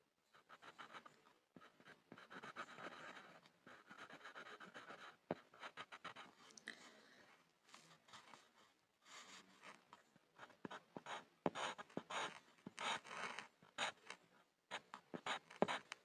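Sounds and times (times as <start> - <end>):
pencil scribbling on a board: 0.4 - 6.4, 10.4 - 16.0.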